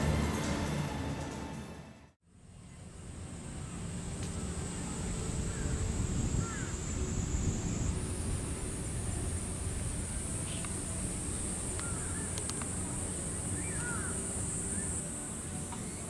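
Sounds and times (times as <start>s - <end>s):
low background rumble: 2.3s - 16.0s
cicadas droning: 2.4s - 16.0s
bird chirps: 10.3s - 15.0s.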